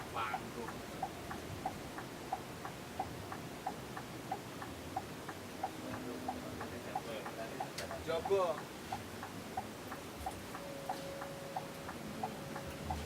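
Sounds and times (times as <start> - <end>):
steady ticking: 0.0 - 13.0.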